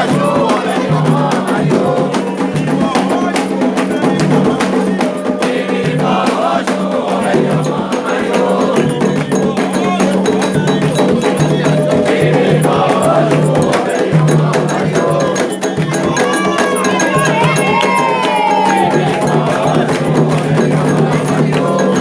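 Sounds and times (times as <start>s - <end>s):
hand drums playing: 0.0s - 22.0s
voices singing: 0.0s - 22.0s
metal bell pattern: 7.0s - 22.0s.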